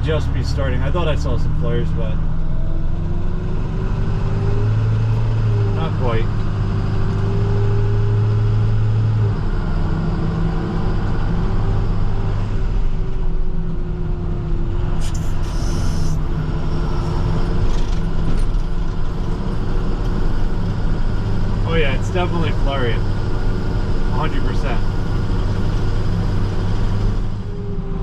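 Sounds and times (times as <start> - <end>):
truck diesel engine droning: 0.0 - 28.0
short hiss: 15.0 - 16.2.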